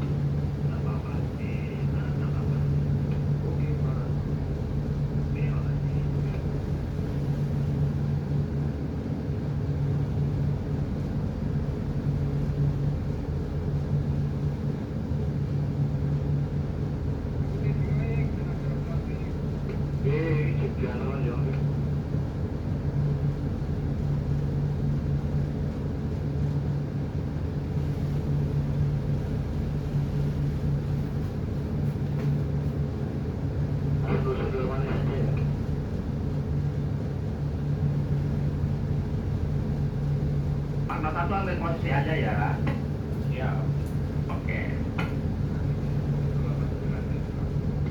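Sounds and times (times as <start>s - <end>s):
ship engine droning: 0.0s - 47.9s.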